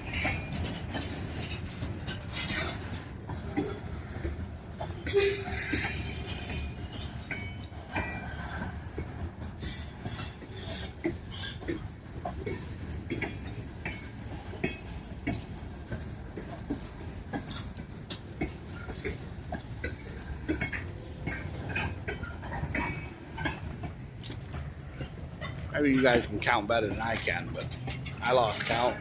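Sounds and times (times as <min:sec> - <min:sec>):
train cars clanking: 0:00.0 - 0:29.0
train wheels rumbling on rail: 0:00.0 - 0:29.0
wheel squeals: 0:00.0 - 0:29.0.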